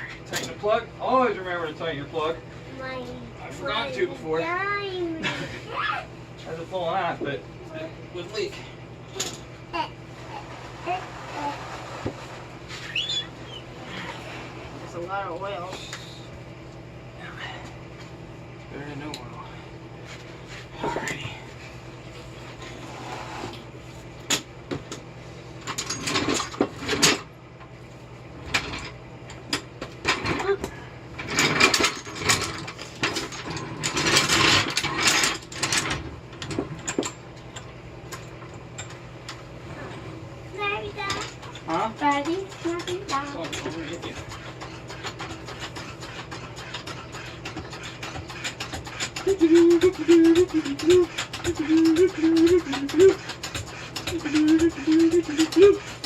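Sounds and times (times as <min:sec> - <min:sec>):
steady low hum: 0:00.0 - 0:56.0
rapid clicking of small mechanism: 0:41.1 - 0:56.0
person humming short notes: 0:49.2 - 0:53.2, 0:54.1 - 0:55.9.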